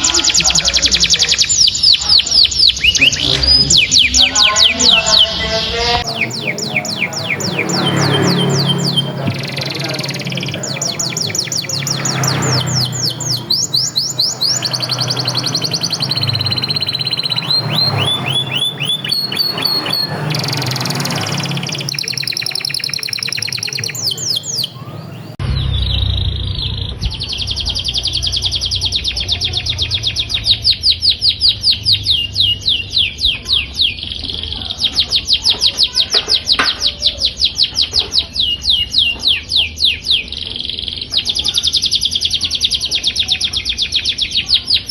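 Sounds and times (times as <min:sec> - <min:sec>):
canaries singing rolling trills: 0:00.0 - 0:44.9
low hum: 0:25.3 - 0:30.6.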